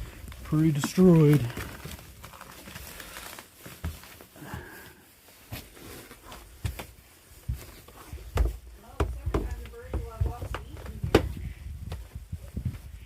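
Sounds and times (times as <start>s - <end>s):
footsteps and knocks: 5.4s - 12.9s.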